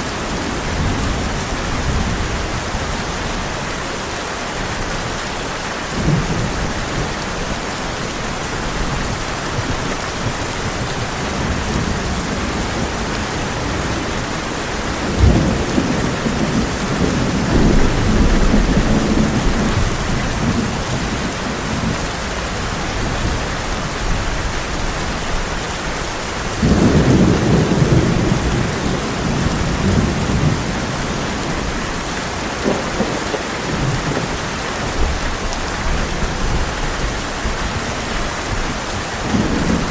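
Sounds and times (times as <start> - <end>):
heavy rain on a tin roof: 0.0 - 39.9
thunder rolling: 9.6 - 22.0, 26.6 - 35.4.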